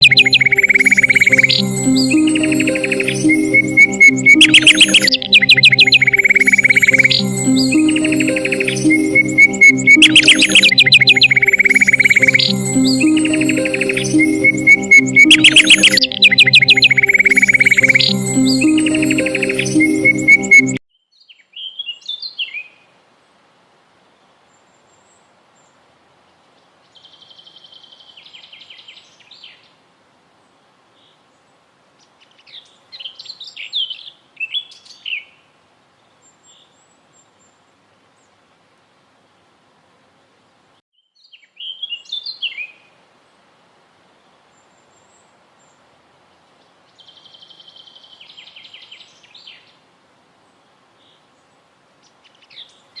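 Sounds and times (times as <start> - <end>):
songbird chirping and trilling: 0.0 - 22.8, 41.0 - 42.8.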